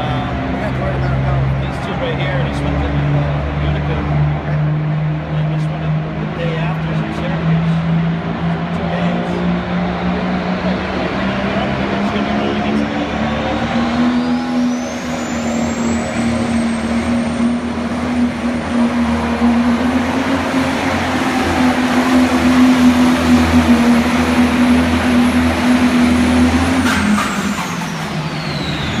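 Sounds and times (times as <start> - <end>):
diesel tractor engine: 0.0 - 29.0.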